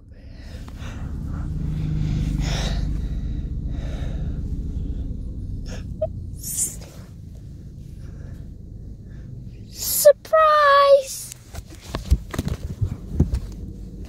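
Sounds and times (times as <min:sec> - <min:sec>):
locomotive rumbling on rails: 0:00.0 - 0:11.6.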